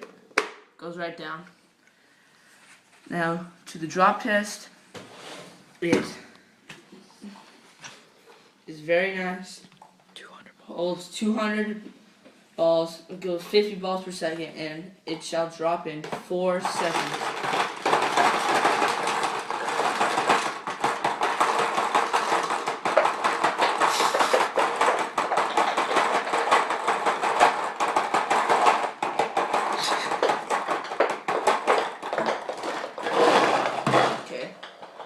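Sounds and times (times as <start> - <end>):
paintballs rattling in loader: 16.0 - 35.0.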